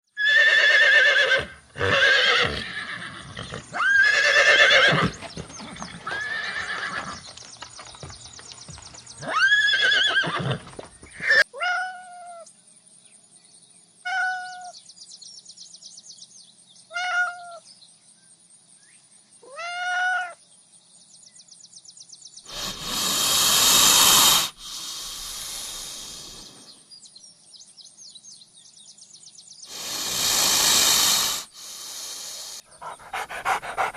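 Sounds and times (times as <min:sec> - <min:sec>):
horse whinnying: 0:00.2 - 0:07.2, 0:09.2 - 0:11.4
short thin calls: 0:22.5 - 0:26.7
loud breathy rush of noise: 0:22.5 - 0:26.9, 0:29.7 - 0:33.9.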